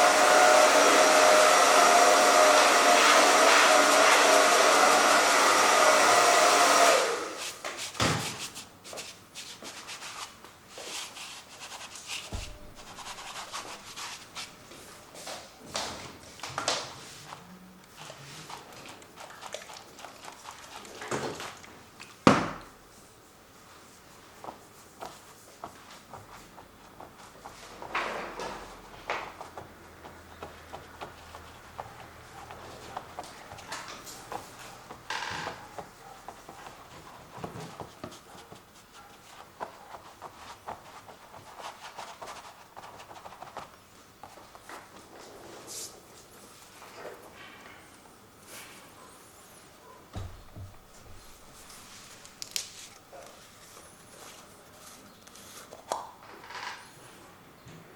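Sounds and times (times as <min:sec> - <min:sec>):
paint scraping strokes: 0:07.2 - 0:15.0, 0:35.6 - 0:46.8
brush tapping on canvas: 0:11.6 - 0:14.5
sharp knock: 0:12.3 - 0:13.7.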